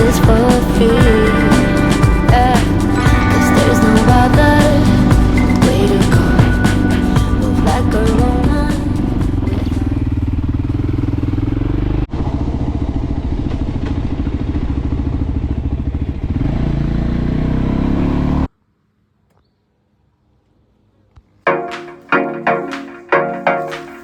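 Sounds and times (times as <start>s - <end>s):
motorcycle engine running: 0.0s - 17.8s.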